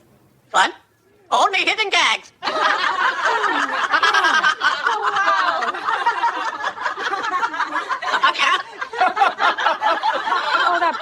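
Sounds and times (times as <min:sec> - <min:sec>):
people laughing: 0:02.4 - 0:11.0.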